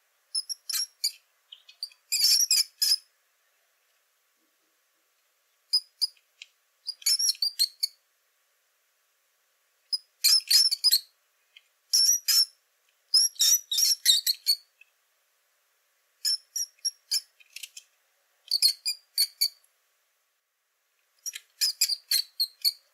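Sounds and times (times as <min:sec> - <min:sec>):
rat squeaking: 0:00.3 - 0:03.1, 0:05.7 - 0:06.2, 0:06.9 - 0:08.0, 0:09.9 - 0:11.1, 0:11.9 - 0:14.7, 0:16.2 - 0:17.8, 0:18.5 - 0:19.6, 0:21.2 - 0:22.9.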